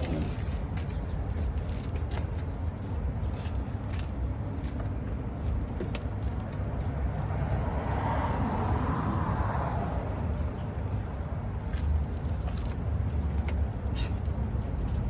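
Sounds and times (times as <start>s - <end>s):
vehicle passing: 6.7s - 13.3s.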